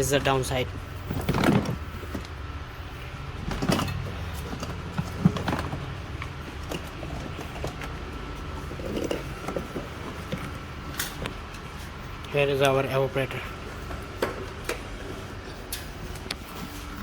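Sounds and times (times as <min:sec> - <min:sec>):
steady low hum: 0:00.0 - 0:17.0
dashboard parts knocking and clicking: 0:03.4 - 0:08.0.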